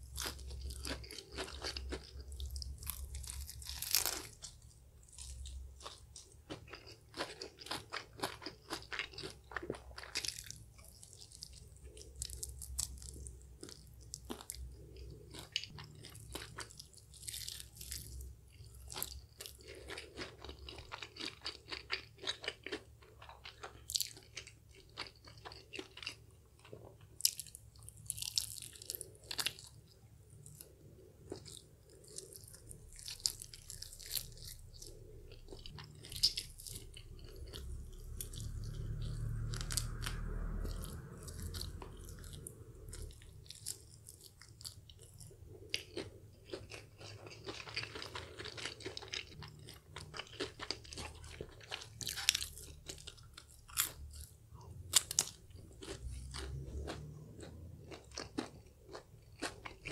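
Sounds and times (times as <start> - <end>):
crunching fried chicken: 0.0 - 59.9
low rumble: 32.9 - 43.8.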